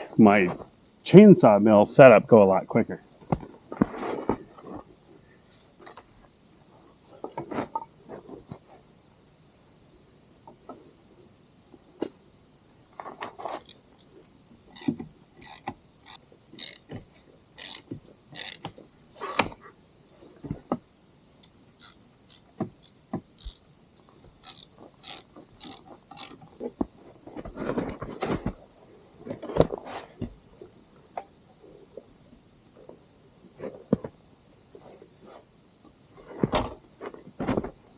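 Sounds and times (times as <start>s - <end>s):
metal parts clicking and knocking: 14.7s - 17.0s, 17.6s - 19.5s, 21.4s - 23.6s, 24.4s - 26.6s.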